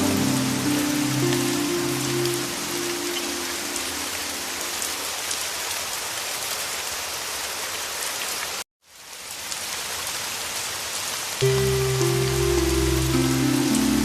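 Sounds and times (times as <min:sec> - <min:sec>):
low held musical notes: 0:00.0 - 0:04.6, 0:11.4 - 0:14.0
heavy rain falling: 0:00.0 - 0:14.0.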